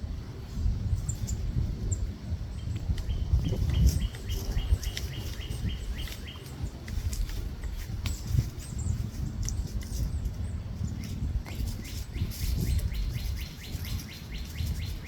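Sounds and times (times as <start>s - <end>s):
steady low rumble: 0.0s - 15.0s
bird chirps: 2.6s - 6.7s, 10.8s - 15.0s
higher bird chirps: 11.0s - 15.0s.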